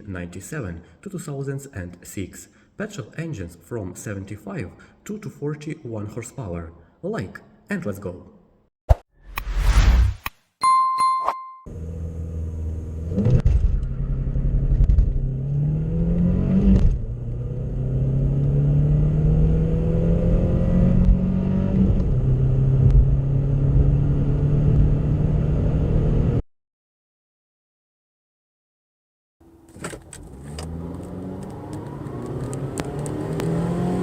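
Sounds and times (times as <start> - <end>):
car engine accelerating hard: 11.7 - 26.4, 30.0 - 34.0.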